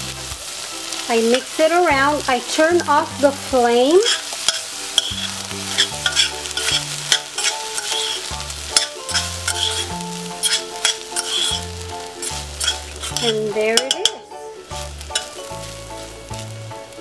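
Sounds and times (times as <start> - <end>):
background music with low bass: 0.0 - 17.0
fork scraping a metal saucepan: 3.9 - 14.2, 15.1 - 15.4.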